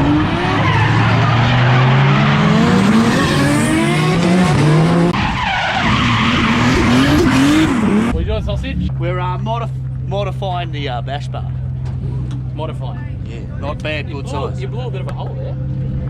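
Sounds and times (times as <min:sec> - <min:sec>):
car engine revving hard: 0:00.0 - 0:05.2, 0:05.8 - 0:08.2
tyres skidding and squealing: 0:00.0 - 0:10.7.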